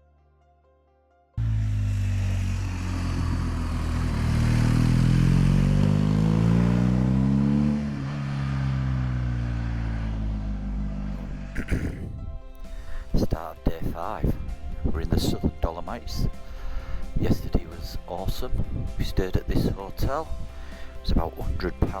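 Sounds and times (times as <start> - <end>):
motorcycle engine accelerating: 1.4 - 12.4.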